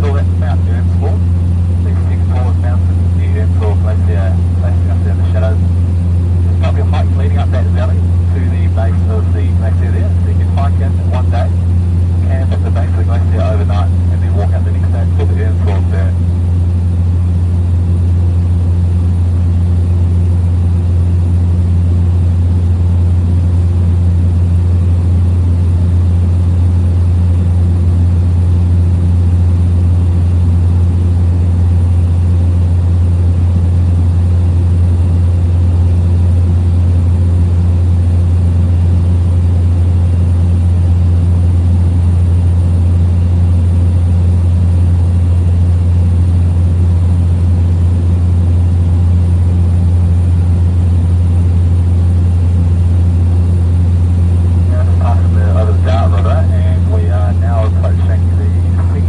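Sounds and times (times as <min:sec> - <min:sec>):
small plane engine drone: 0:00.0 - 0:59.0.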